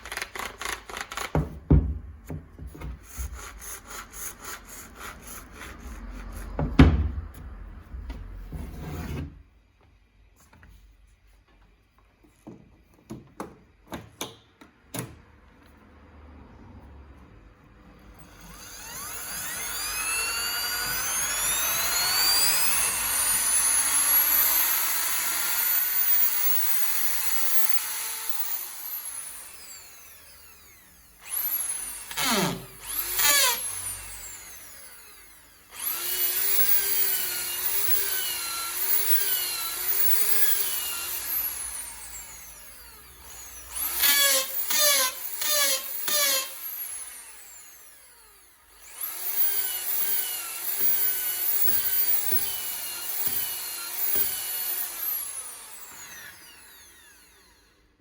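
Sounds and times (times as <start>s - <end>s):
electric drill motor whining: 18.1s - 58.0s.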